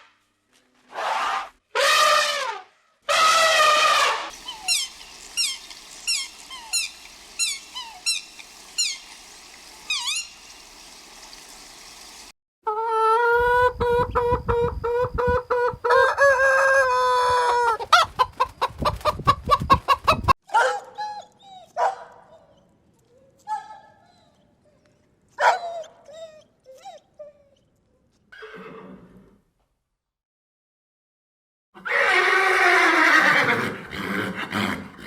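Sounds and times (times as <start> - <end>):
chicken crowing call: 3.1 - 10.4, 15.5 - 17.9
chickens cackling: 3.2 - 20.3
chicken clucks: 13.0 - 20.3.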